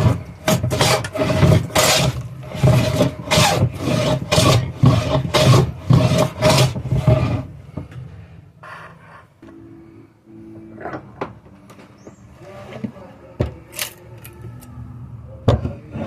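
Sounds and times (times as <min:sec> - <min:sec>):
hand tool rasping on wood: 0:00.0 - 0:07.5.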